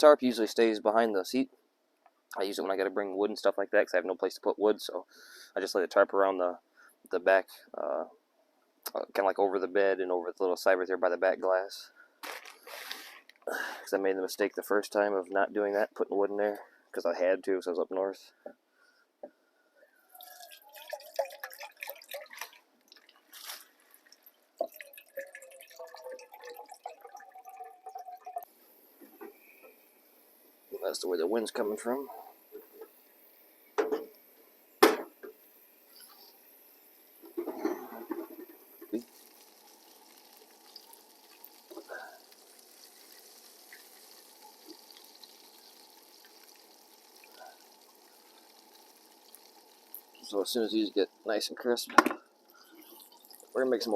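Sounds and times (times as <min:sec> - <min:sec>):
liquid pouring and dripping: 0:20.1 - 0:29.8, 0:37.2 - 0:51.4, 0:52.2 - 0:53.9
food sizzling in a pan: 0:28.5 - 0:51.4.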